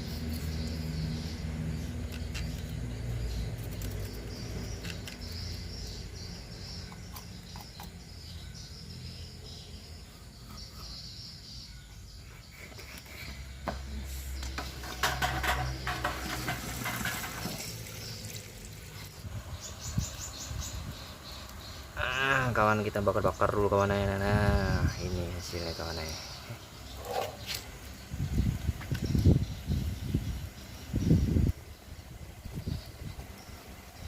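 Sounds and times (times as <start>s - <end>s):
rapid clicking and chirping calls: 0.0s - 23.6s
insects chirring: 0.0s - 34.0s.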